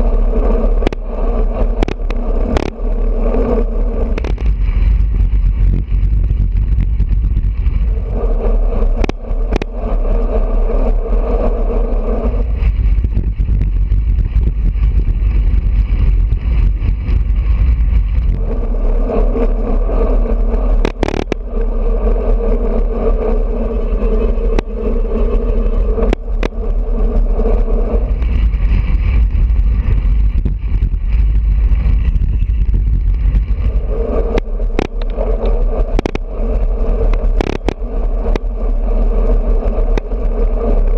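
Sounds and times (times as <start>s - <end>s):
low road noise rumble: 0.0s - 40.9s
steady hum: 0.0s - 40.9s
wind buffeting microphone: 0.0s - 40.9s
sharp clicks: 0.8s - 1.0s, 1.8s - 2.8s, 4.1s - 4.5s, 9.0s - 9.7s, 34.3s - 36.2s, 37.1s - 38.5s.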